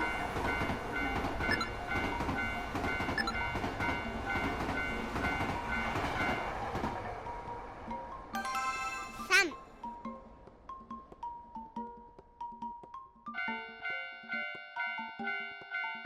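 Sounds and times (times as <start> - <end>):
train cars rumbling and rattling: 0.0 - 8.3.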